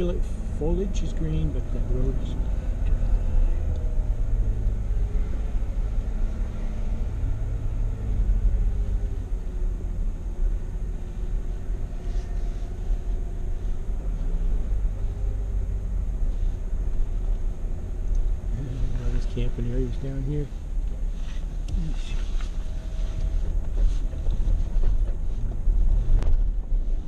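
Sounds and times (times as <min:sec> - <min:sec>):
vehicle driving on dirt road: 0:00.0 - 0:27.0.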